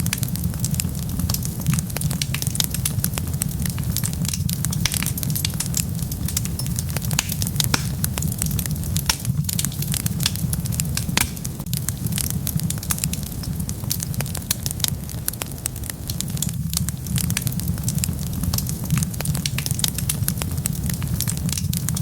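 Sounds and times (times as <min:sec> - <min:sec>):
fire crackling and popping: 0:00.0 - 0:22.0
fire low rumble: 0:00.0 - 0:22.0.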